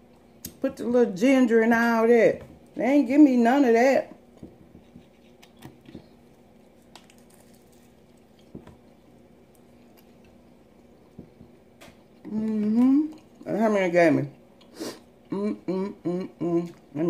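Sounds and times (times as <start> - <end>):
faint steady hum: 0.0 - 17.0
person chewing wet mouth sounds: 4.8 - 10.4, 12.1 - 13.5.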